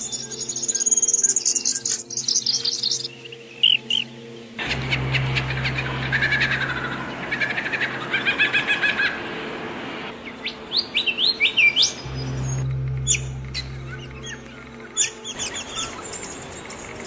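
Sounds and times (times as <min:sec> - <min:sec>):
songbirds chirping and trilling: 0:00.0 - 0:17.0
steady low hum: 0:11.9 - 0:17.0.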